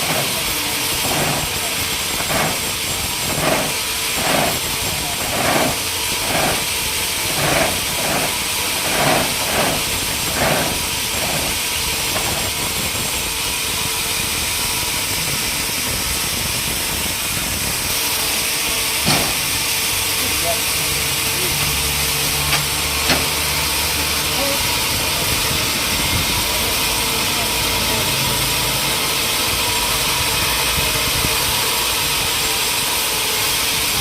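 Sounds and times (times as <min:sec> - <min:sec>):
rhythmic pulses: 0:00.0 - 0:13.0
hissing machinery: 0:00.0 - 0:34.0.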